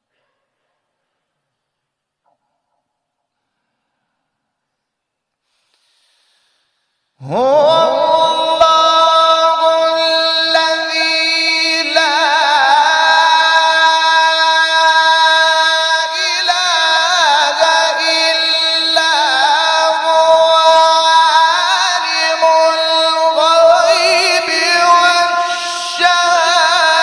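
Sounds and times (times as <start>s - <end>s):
man reciting in held melismatic notes: 7.2s - 27.0s.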